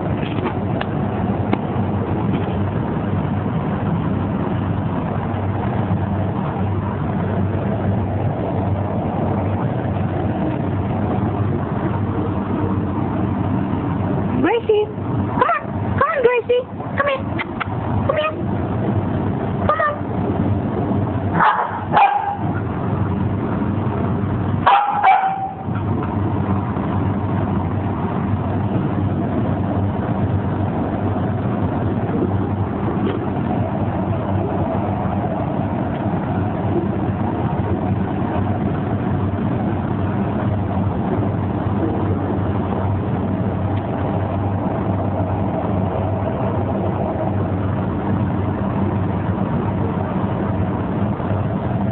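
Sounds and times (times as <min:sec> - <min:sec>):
steady low rumble: 0:00.0 - 0:51.9
dog yelping: 0:15.4 - 0:16.2, 0:17.0 - 0:18.4, 0:19.7 - 0:20.1, 0:21.4 - 0:22.5, 0:24.7 - 0:25.7.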